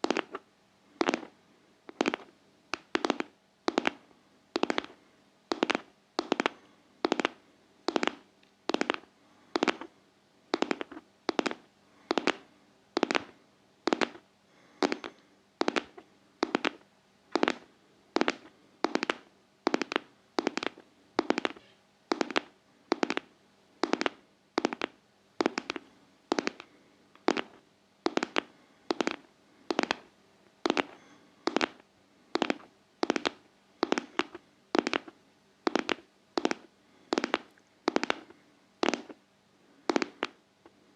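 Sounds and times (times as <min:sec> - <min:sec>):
sharp taps in pairs: 0:02.8 - 0:04.0, 0:04.6 - 0:09.0, 0:09.6 - 0:09.9, 0:10.5 - 0:12.4, 0:13.9 - 0:14.2, 0:14.8 - 0:16.8, 0:18.2 - 0:30.0, 0:30.6 - 0:31.8, 0:32.4 - 0:35.1, 0:35.7 - 0:39.2, 0:39.9 - 0:40.4.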